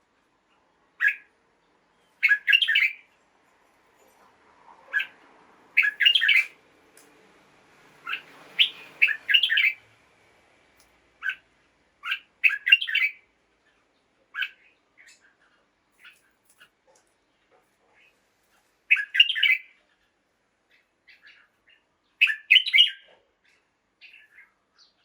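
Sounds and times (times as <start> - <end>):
bird chirping: 0.5 - 3.1, 4.8 - 5.2, 5.8 - 6.6, 8.0 - 9.8, 11.2 - 18.2, 18.9 - 20.1, 20.7 - 25.0.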